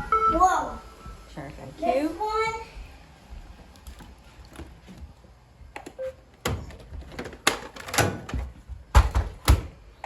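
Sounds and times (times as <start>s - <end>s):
knocks and clunks: 5.8s - 9.8s.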